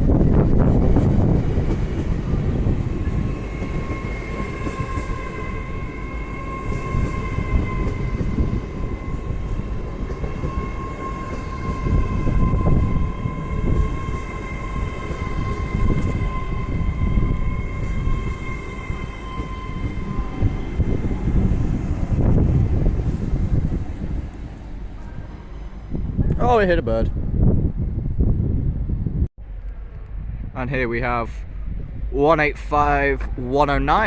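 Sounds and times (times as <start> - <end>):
train rumble: 0.0 - 34.0.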